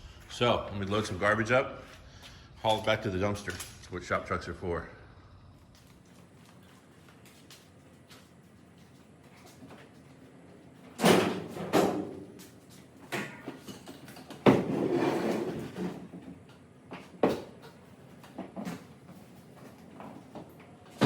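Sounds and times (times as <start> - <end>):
junk banging into truck bed: 11.0 - 12.2.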